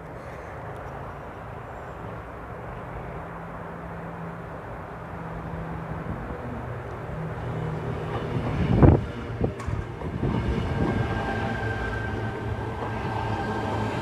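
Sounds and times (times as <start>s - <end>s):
electric train humming: 0.7s - 14.0s.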